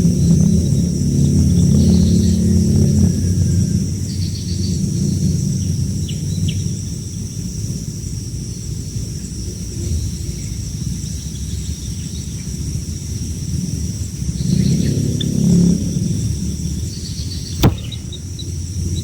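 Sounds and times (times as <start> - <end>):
faint bird chirps: 16.9 - 19.0.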